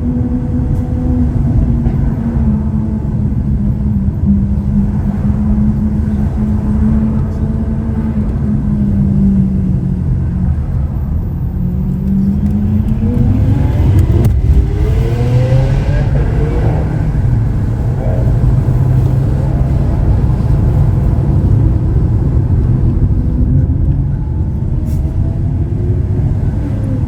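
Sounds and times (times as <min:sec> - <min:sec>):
car engine deep rumble: 0:00.0 - 0:27.0.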